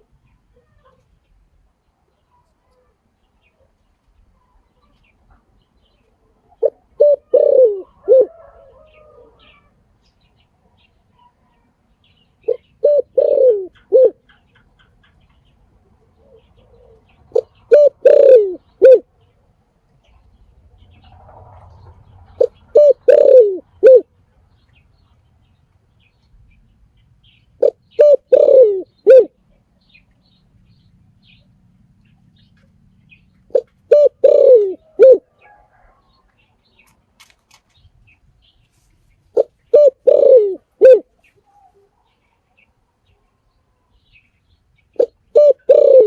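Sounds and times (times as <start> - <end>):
dove cooing: 6.4 - 9.7, 12.4 - 15.2, 15.9 - 19.2, 22.2 - 24.1, 27.6 - 29.4, 33.5 - 36.1, 39.3 - 42.0, 45.0 - 46.0.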